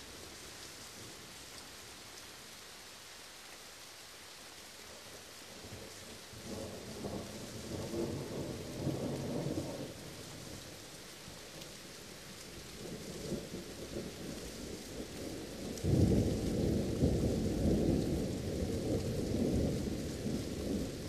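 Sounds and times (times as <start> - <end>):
steady rain hissing: 0.0 - 21.0.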